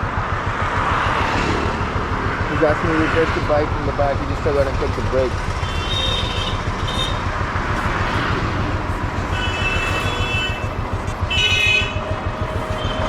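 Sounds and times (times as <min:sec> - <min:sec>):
traffic engine rumble: 0:00.0 - 0:13.0
vehicle horns honking: 0:05.5 - 0:07.4, 0:09.2 - 0:13.0.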